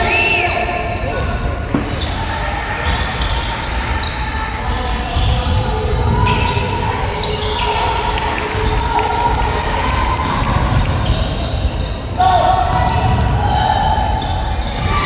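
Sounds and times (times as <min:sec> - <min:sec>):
basketball bouncing: 0:12.7 - 0:13.6.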